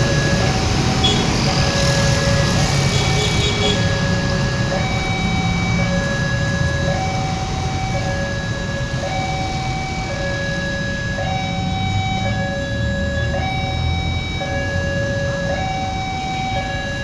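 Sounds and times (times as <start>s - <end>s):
level crossing two-tone alarm: 0.0s - 17.0s.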